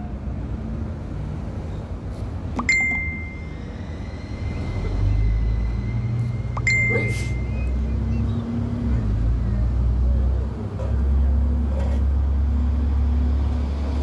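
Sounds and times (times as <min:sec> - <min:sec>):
train rumbling into station: 0:00.0 - 0:14.0
bell-like dings: 0:02.7 - 0:03.6, 0:06.6 - 0:07.6.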